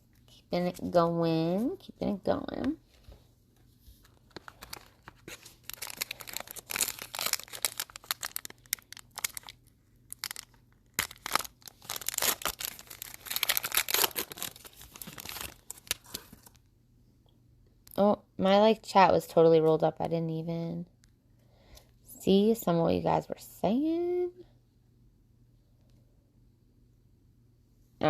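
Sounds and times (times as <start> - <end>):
wrapper tearing and crinkling: 4.1 - 16.6.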